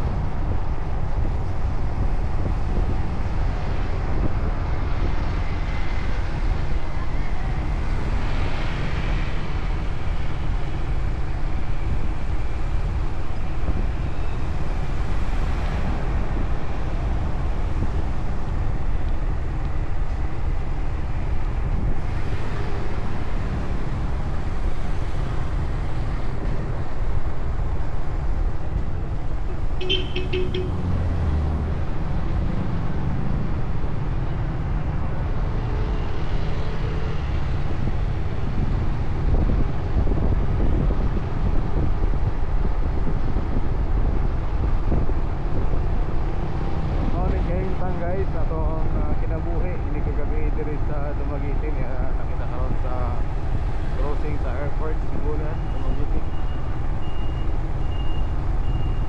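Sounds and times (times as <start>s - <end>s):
motorcycle engine and road rumble: 0.0s - 59.0s
motorcycle horn beep: 29.8s - 30.8s.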